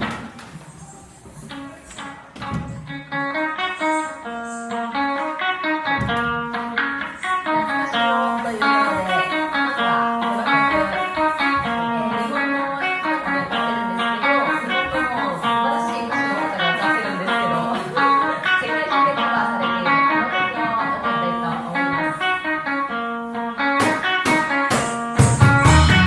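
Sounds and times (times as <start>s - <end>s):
plucked strings picking runs: 1.3s - 26.0s
bass notes: 25.2s - 26.0s.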